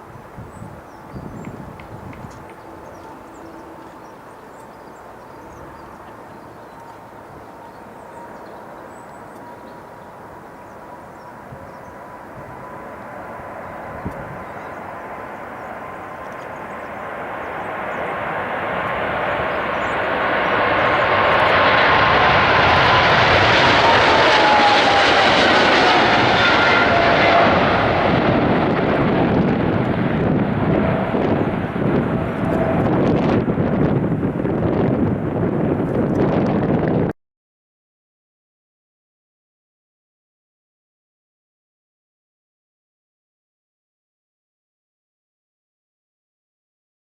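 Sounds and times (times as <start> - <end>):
jet engine whine: 0.0 - 37.1
jet engines roaring: 0.0 - 37.1.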